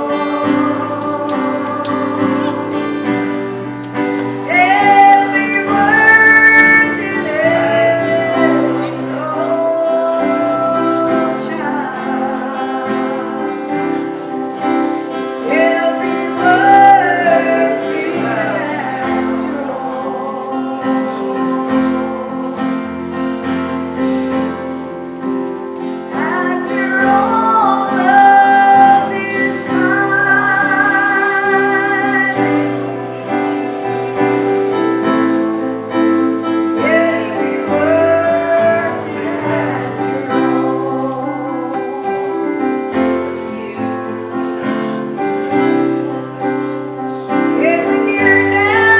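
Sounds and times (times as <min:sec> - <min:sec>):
woman singing with vibrato: 0:00.0 - 0:23.7, 0:26.1 - 0:48.9
sustained instrumental chords: 0:00.0 - 0:48.9.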